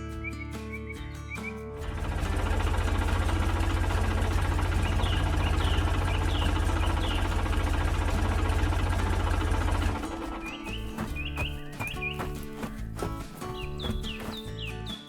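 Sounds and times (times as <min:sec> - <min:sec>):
bird chirps: 0:00.0 - 0:01.9, 0:04.6 - 0:08.1, 0:09.6 - 0:15.0
farm machine engine throbbing: 0:01.8 - 0:14.7.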